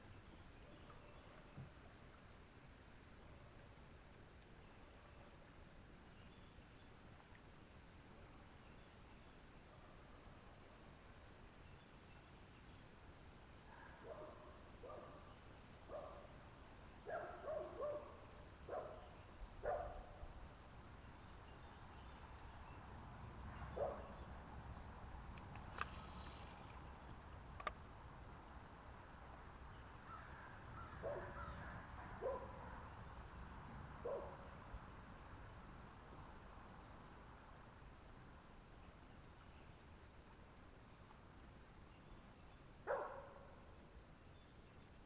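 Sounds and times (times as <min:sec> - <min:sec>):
high-pitched insect drone: 0:25.8 - 0:27.0
sharp clicks: 0:27.6 - 0:27.8.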